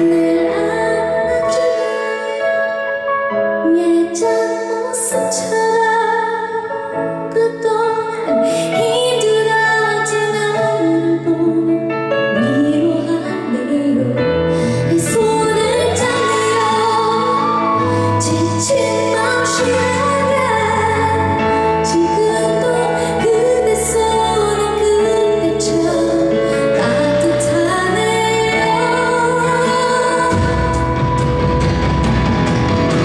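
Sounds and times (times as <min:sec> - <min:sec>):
woman singing a slow ballad: 0:00.0 - 0:03.0, 0:03.6 - 0:31.0
sustained instrumental accompaniment: 0:14.4 - 0:33.0.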